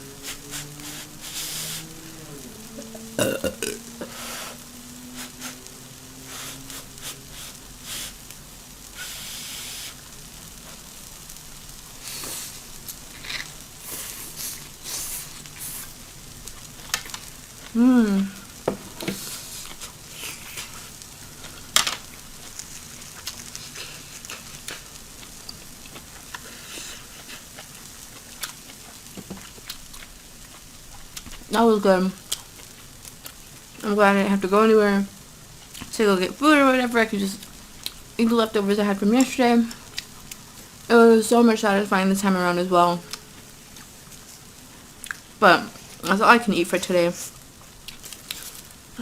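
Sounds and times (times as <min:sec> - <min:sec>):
food sizzling on a grill: 0:00.0 - 0:49.0
low wavering vocal sound: 0:01.6 - 0:04.2.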